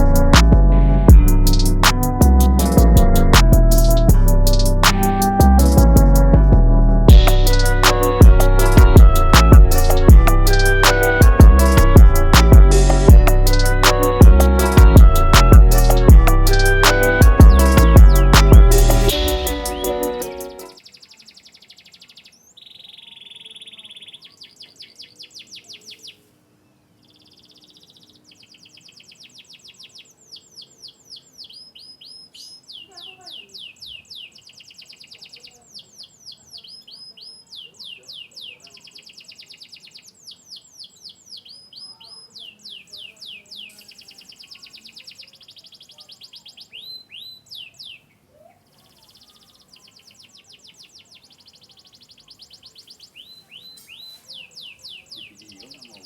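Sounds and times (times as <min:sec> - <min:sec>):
canary singing trills: 0:19.1 - 0:56.0.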